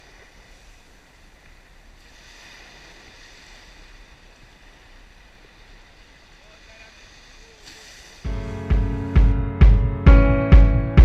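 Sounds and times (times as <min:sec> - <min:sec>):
rain: 0:00.0 - 0:08.3
surf: 0:00.0 - 0:11.0.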